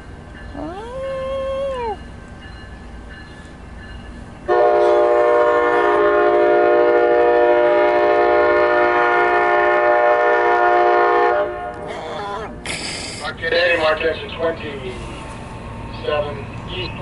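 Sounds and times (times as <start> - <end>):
train horn long chord: 4.5 - 11.8.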